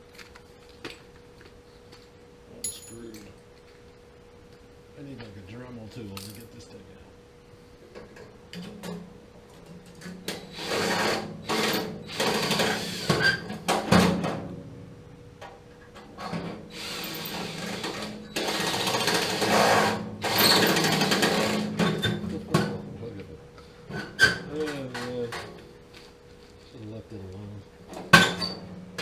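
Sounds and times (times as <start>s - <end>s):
power tool bursts on metal: 10.3s - 14.2s, 16.7s - 22.2s.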